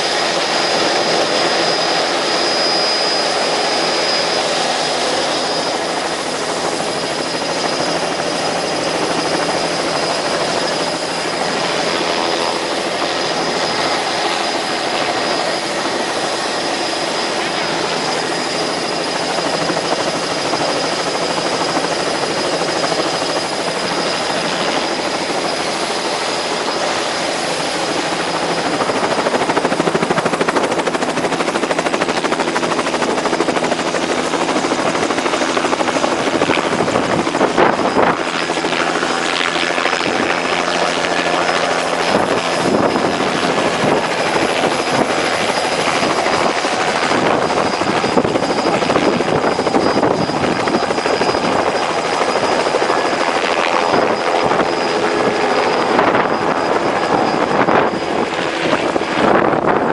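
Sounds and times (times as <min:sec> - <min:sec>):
helicopter rotor and engine: 0:00.0 - 0:59.9
high whine: 0:41.9 - 0:59.9.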